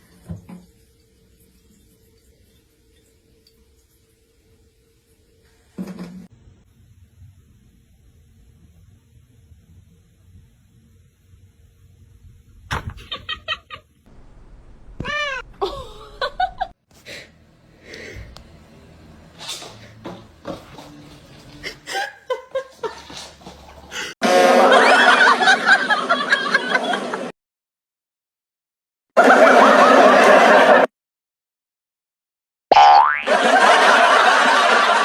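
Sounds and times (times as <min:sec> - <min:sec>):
cat meowing: 0:15.0 - 0:15.5
people laughing: 0:15.6 - 0:16.7, 0:21.6 - 0:23.3, 0:24.5 - 0:27.3, 0:29.2 - 0:30.9, 0:33.3 - 0:35.0.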